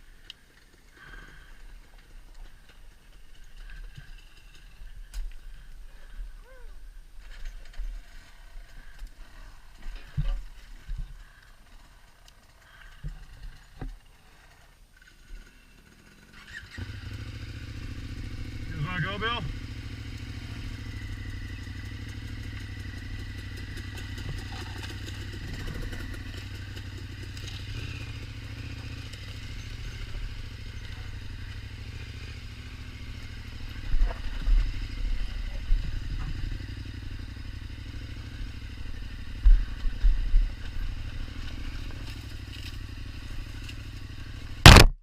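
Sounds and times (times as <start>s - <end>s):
motorcycle engine running: 15.1s - 45.0s.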